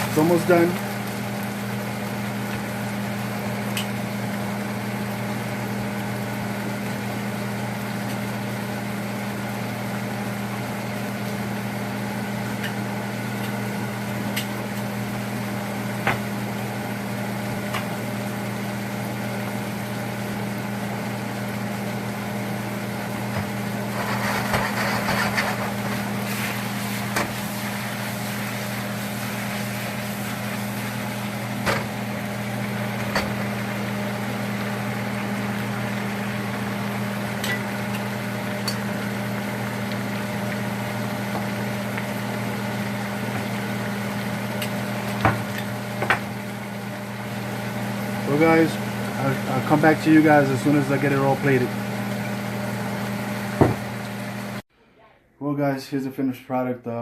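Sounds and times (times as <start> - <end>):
low mechanical hum: 0.0 - 56.3
rustling sizzling noise: 23.2 - 33.7.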